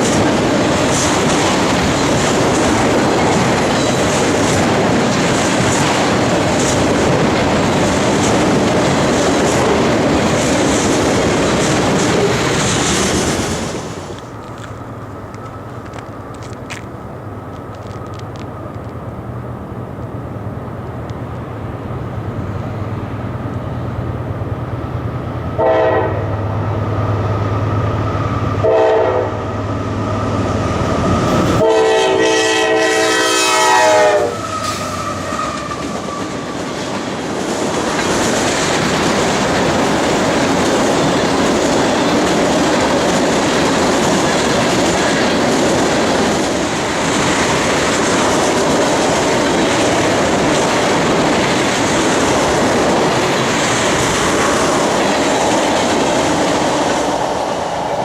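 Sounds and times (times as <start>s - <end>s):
train wheels clattering on rails: 0.0s - 19.0s, 30.5s - 58.0s
diesel locomotive engine hum: 0.0s - 58.0s
train horn blasts: 25.6s - 26.5s, 28.6s - 29.5s, 31.6s - 35.8s.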